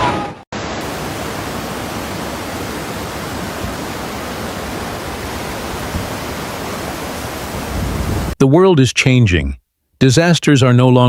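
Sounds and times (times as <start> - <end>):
steady rushing hiss: 0.6 - 8.4.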